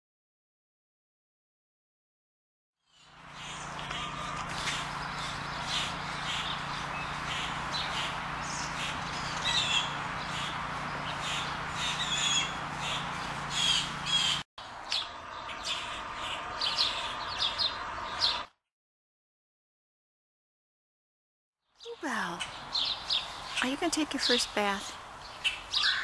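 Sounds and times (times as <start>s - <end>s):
birds chirping: 2.9s - 18.5s, 21.8s - 26.0s
steady low hum: 3.0s - 18.4s.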